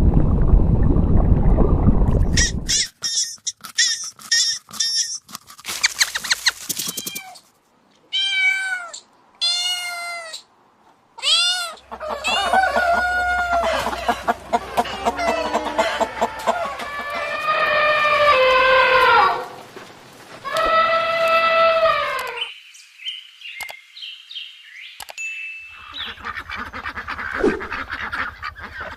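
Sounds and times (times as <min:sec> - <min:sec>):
quick high animal chirps: 0:02.4 - 0:07.5
rising and falling animal calls: 0:11.3 - 0:19.6, 0:20.4 - 0:22.5, 0:27.3 - 0:27.9.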